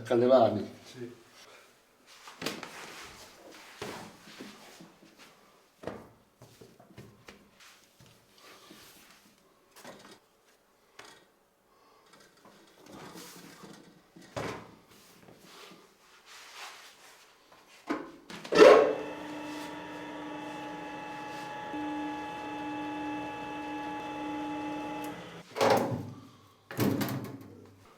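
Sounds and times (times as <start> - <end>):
electric machine humming: 18.8 - 25.4.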